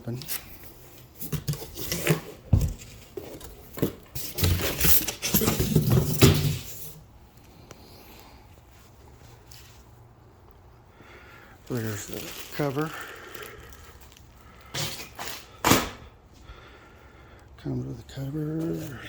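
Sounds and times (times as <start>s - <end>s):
packaging rustling and scraping: 0.1s - 7.1s, 11.6s - 15.6s.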